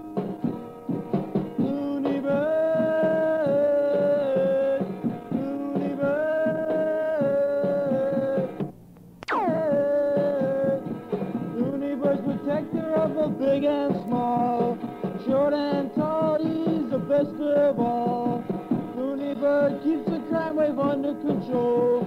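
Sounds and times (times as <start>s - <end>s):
rock drums and electric guitar: 0.0s - 8.7s, 9.3s - 22.0s
downward pitch swoop: 9.2s - 10.6s.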